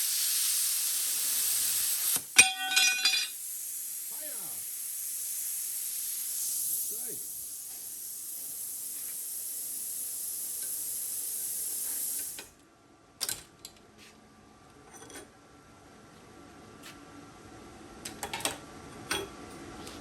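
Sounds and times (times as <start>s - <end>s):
plasma cutter hissing: 0.0s - 12.5s.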